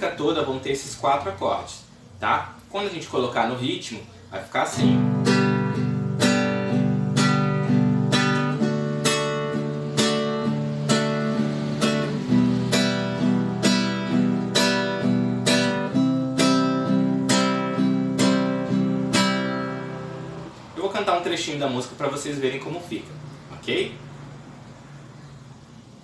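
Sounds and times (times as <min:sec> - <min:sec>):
acoustic guitar strumming: 0:04.4 - 0:23.0.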